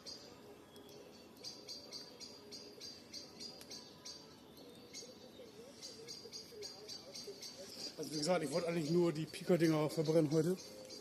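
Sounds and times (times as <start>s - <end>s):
campfire crackling: 0.0s - 6.6s.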